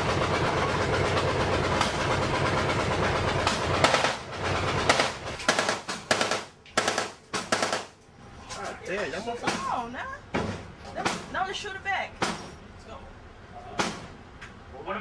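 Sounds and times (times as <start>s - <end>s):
machine-gun fire: 3.5s - 8.0s.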